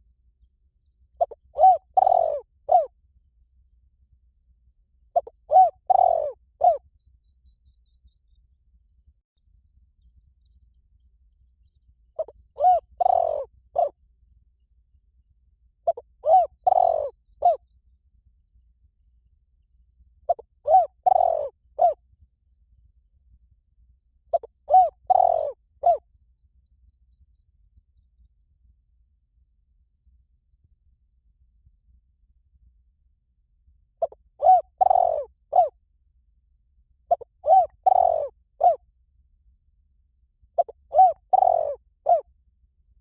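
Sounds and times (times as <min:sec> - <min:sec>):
dove cooing: 0:01.2 - 0:02.9, 0:05.2 - 0:06.8, 0:12.2 - 0:14.0, 0:15.9 - 0:17.6, 0:20.3 - 0:22.0, 0:24.3 - 0:26.0, 0:34.0 - 0:35.7, 0:37.1 - 0:38.8, 0:40.6 - 0:42.2.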